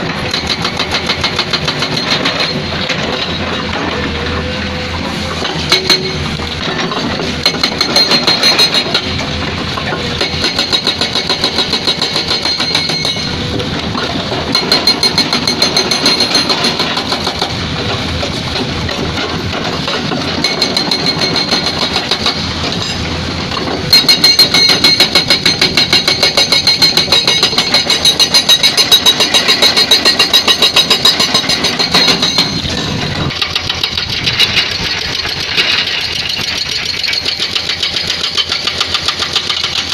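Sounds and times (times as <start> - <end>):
hydraulic breaker hammering rock: 0.0 - 39.9.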